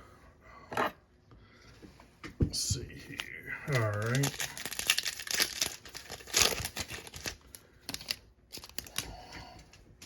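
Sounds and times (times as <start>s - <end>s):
card pack wrapper crinkling: 2.9s - 9.1s
wrapper tearing open: 3.1s - 9.0s.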